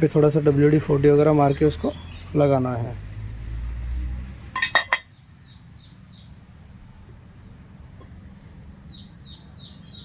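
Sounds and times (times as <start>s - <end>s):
small bird chirps: 1.4s - 2.4s, 5.0s - 6.4s, 8.8s - 10.0s.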